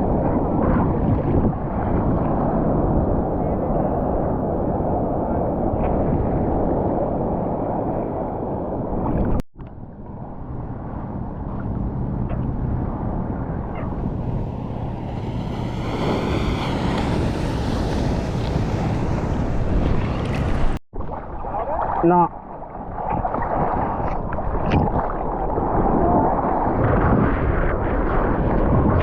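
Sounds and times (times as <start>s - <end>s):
surf and churning water: 0.0s - 29.0s
wind buffeting microphone: 0.0s - 29.0s
water splashing: 13.7s - 26.6s.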